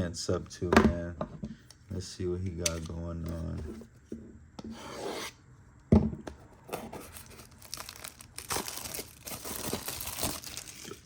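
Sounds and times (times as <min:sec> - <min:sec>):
packaging tearing and crinkling: 0:06.7 - 0:11.0.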